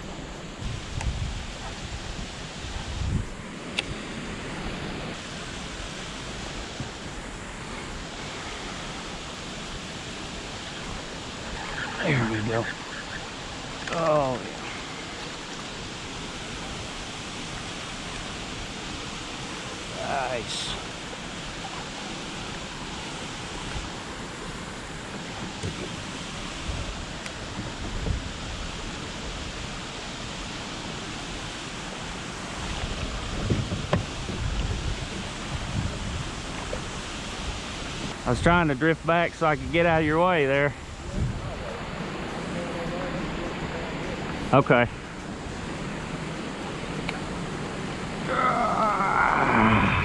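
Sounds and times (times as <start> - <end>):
wind rumble on microphone: 0.0 - 13.8, 16.0 - 38.6, 39.6 - 50.0
river current rushing: 0.0 - 50.0.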